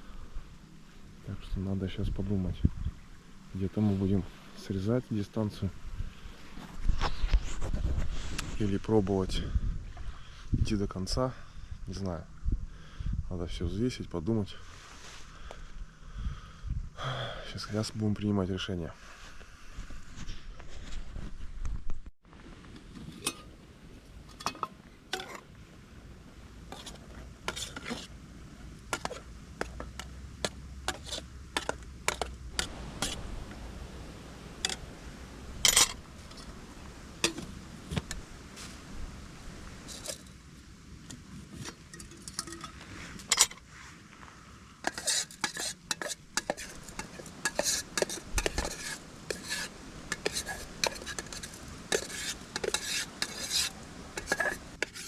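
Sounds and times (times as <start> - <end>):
metal utensils clinking on cookware: 24.3 - 25.4, 35.6 - 36.5, 41.6 - 43.6, 44.8 - 55.0.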